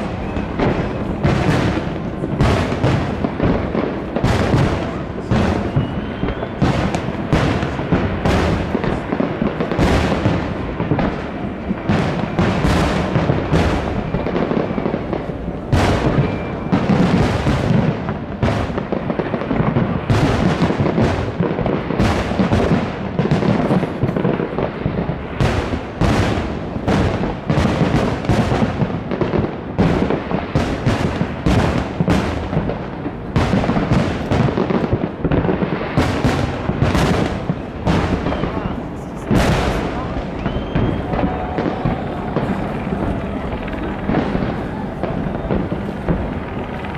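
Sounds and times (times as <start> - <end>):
fireworks bangs: 0.0 - 46.9
steady rumble: 40.9 - 46.9.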